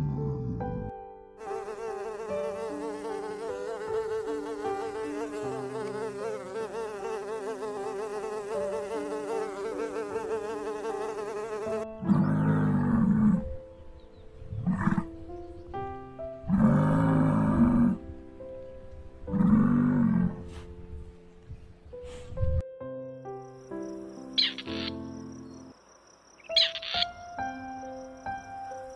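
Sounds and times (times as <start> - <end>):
honeybees buzzing: 1.4 - 11.8.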